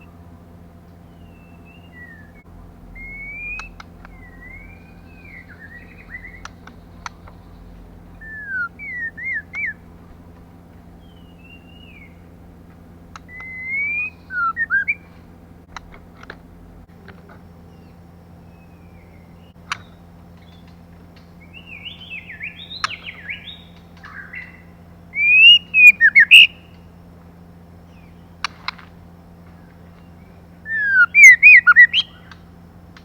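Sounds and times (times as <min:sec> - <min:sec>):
low hum: 0:00.0 - 0:33.0
bird whistling calls: 0:01.0 - 0:10.2, 0:11.0 - 0:12.3, 0:13.2 - 0:15.2, 0:17.6 - 0:20.7, 0:21.4 - 0:26.9, 0:29.6 - 0:32.4
sharp clicks: 0:03.1 - 0:04.5, 0:06.2 - 0:07.5, 0:13.1 - 0:13.9, 0:14.6 - 0:17.4, 0:19.6 - 0:21.3, 0:22.7 - 0:24.2, 0:28.4 - 0:29.0.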